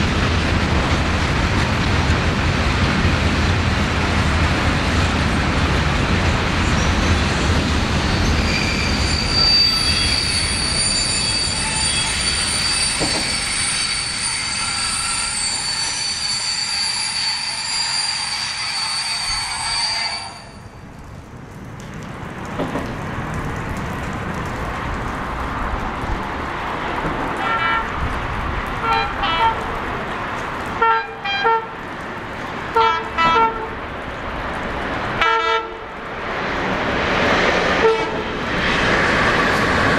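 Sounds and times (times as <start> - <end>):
train rumble: 0.0 - 39.9
train wheels squealing: 6.6 - 20.7
locomotive horn toots: 17.0 - 20.6, 27.4 - 28.0, 28.8 - 29.7, 30.8 - 31.8, 32.8 - 33.8, 35.2 - 35.8, 37.8 - 38.3.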